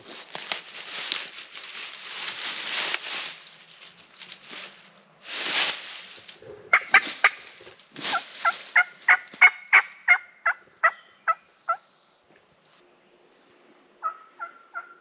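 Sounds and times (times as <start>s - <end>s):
turkey calling: 6.4s - 11.8s, 14.0s - 15.0s.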